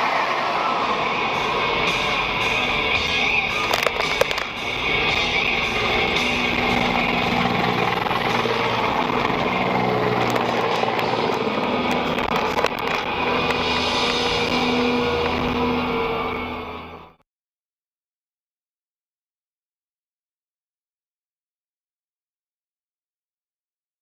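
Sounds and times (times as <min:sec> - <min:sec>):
car engine and road noise: 0:00.0 - 0:17.2
music playing: 0:00.0 - 0:17.2.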